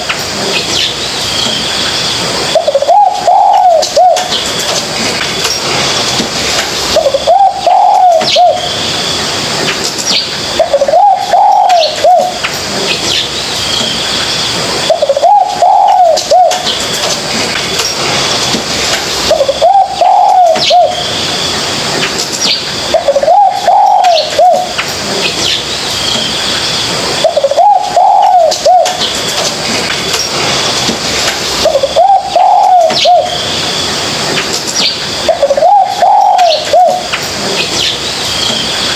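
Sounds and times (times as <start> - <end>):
dove cooing: 2.5 - 4.4, 6.9 - 8.7, 10.6 - 12.4, 14.8 - 16.8, 19.2 - 21.1, 22.9 - 24.8, 27.2 - 29.1, 31.6 - 33.4, 35.3 - 37.1.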